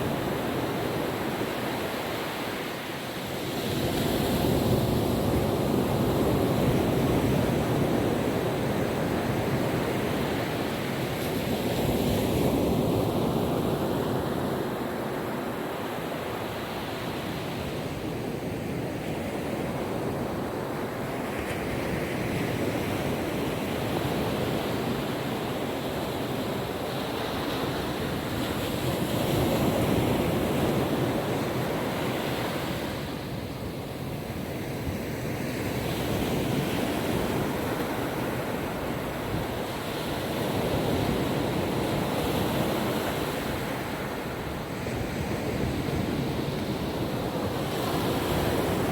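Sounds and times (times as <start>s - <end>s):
ocean waves washing onto beach: 0.0s - 48.9s
wind on microphone: 16.6s - 48.9s.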